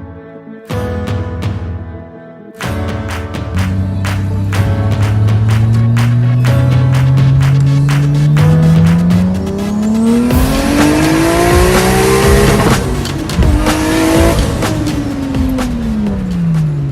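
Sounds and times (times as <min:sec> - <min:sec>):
car engine accelerating hard: 0:03.6 - 0:16.9.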